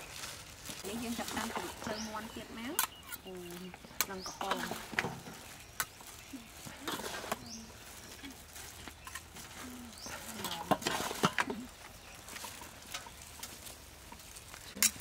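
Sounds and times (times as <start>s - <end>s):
high bird chirps: 1.6s - 6.7s
bird cooing: 9.5s - 10.5s
tongs and spoon clinking in steel bowl: 10.0s - 13.6s, 14.7s - 15.0s.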